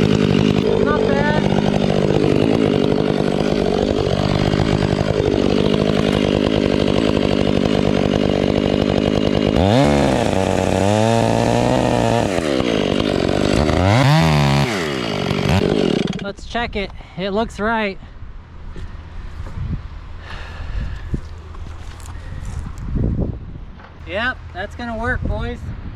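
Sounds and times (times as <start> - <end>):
chainsaw running and revving: 0.0 - 16.4.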